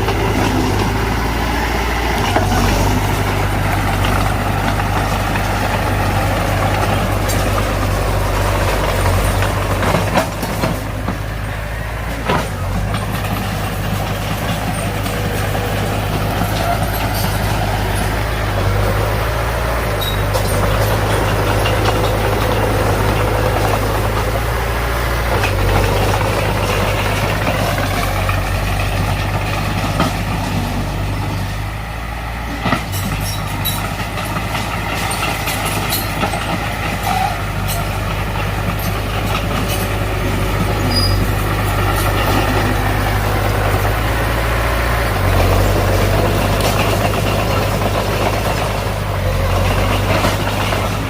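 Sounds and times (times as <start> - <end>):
heavy diesel engine droning: 0.0 - 51.0.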